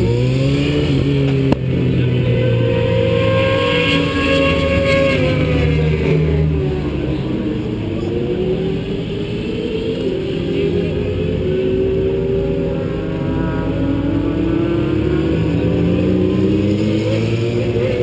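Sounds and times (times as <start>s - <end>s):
race car engine accelerating: 0.0s - 18.0s
road and wind noise: 0.0s - 18.0s.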